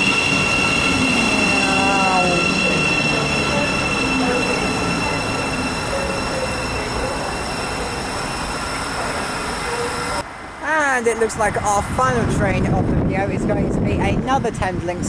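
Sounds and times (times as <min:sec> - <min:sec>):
falling tones: 0:00.0 - 0:10.2
train electrical whine: 0:00.0 - 0:10.2
rail rolling noise: 0:00.0 - 0:15.0.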